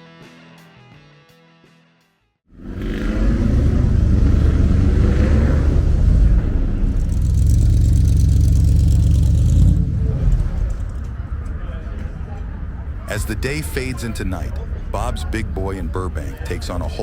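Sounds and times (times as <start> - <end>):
car engine running: 2.5 - 11.4.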